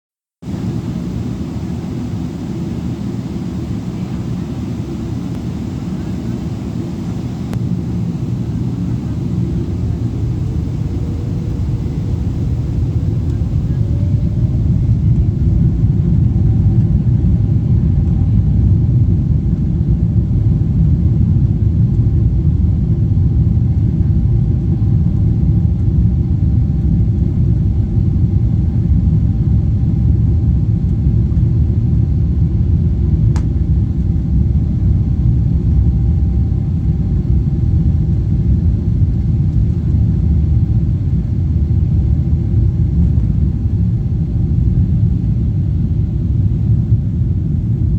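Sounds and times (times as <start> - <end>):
jet engines roaring: 0.4 - 23.8.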